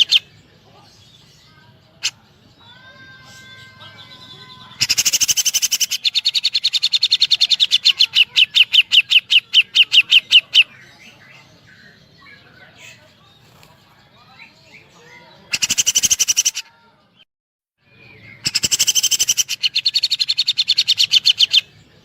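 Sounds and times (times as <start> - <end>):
bird rapid sharp repeated notes: 4.8 - 10.7, 15.5 - 16.6.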